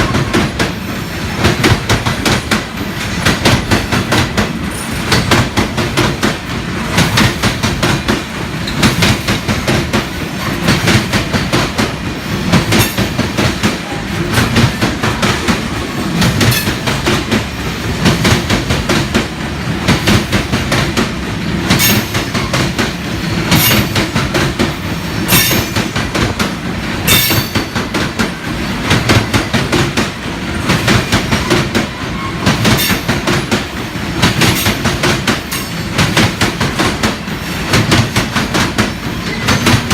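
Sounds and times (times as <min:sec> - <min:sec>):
train wheels clacking over rail joints: 0:00.0 - 0:39.9.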